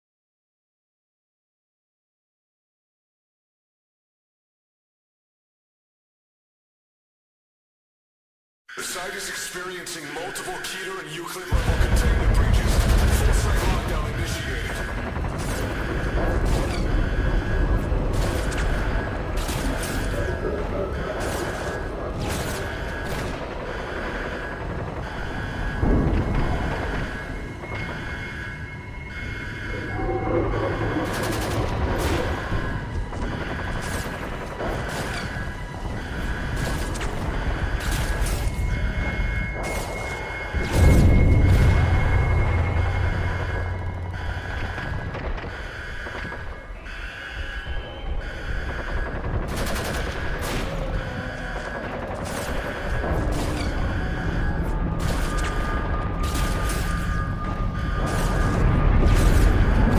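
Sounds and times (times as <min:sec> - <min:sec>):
gunfire bursts: 0:11.5 - 0:27.2, 0:30.8 - 0:38.6, 0:48.2 - 0:59.9
steady high-pitched tone: 0:25.8 - 0:34.0
low rumble: 0:28.6 - 0:33.6, 0:40.5 - 0:45.5.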